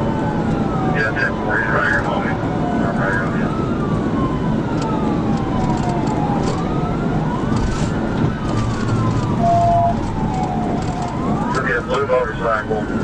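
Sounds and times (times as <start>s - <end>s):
police siren wailing: 0.0s - 13.0s
road and engine noise: 0.0s - 13.0s.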